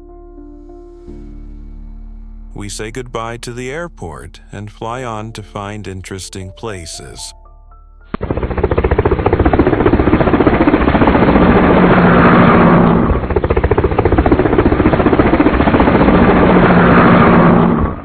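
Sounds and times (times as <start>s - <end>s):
pulsing aircraft engine clatter: 8.1s - 18.0s.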